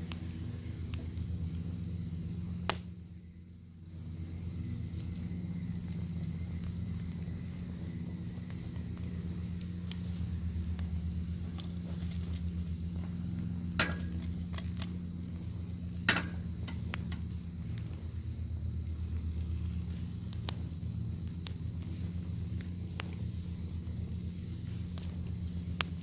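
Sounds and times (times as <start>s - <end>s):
pops and crackles: 0.0s - 1.6s, 2.6s - 3.0s, 8.3s - 18.0s, 19.0s - 26.0s
steady low hum: 0.0s - 26.0s.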